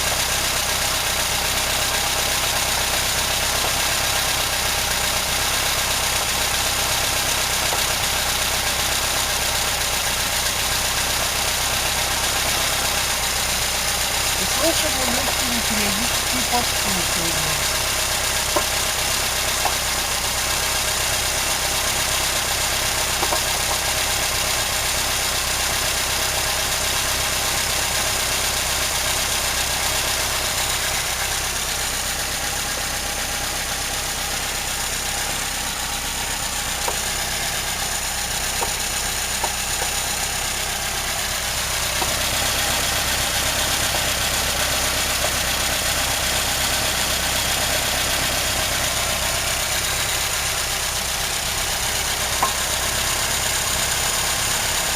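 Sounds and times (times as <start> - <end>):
car engine idling: 0.0 - 54.9
light engine knocks: 18.4 - 20.4, 21.8 - 24.3, 36.7 - 40.8, 41.4 - 44.3, 51.8 - 54.1.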